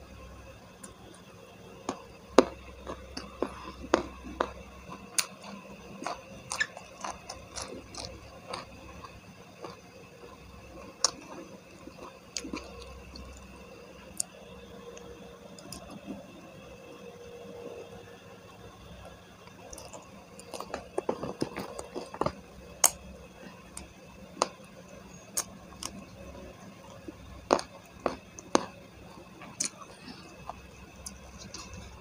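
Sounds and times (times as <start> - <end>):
wet chewing and lip smacks: 1.9 - 10.4.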